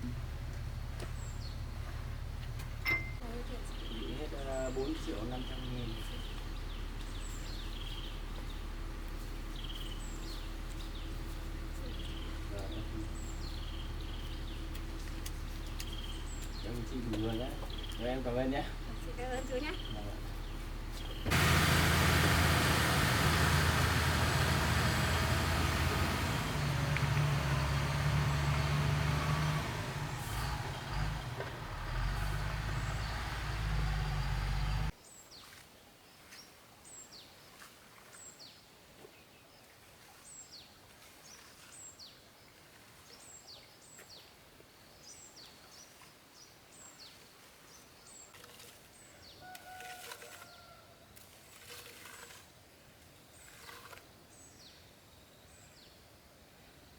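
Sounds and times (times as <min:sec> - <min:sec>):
heavy engine humming: 0:00.0 - 0:16.9, 0:18.7 - 0:34.9
small birds chirping: 0:00.0 - 0:35.5.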